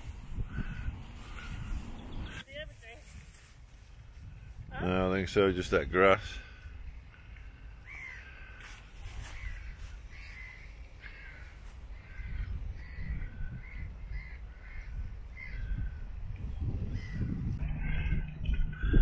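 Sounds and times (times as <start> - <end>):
wind rumble on microphone: 0.0 - 6.2, 11.8 - 19.0
crows cawing: 0.4 - 2.4, 6.4 - 16.0, 16.9 - 19.0.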